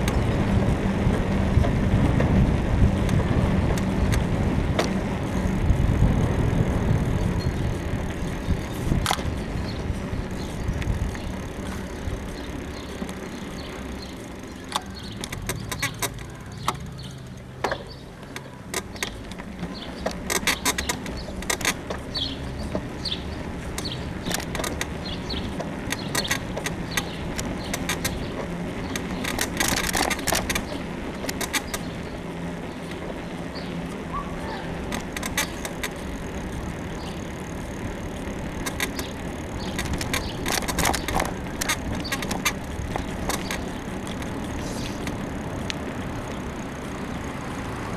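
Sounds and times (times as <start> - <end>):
wind rumbling on microphone: 0.0 - 14.0
bicycle suspension creaking and clicking: 0.0 - 47.9.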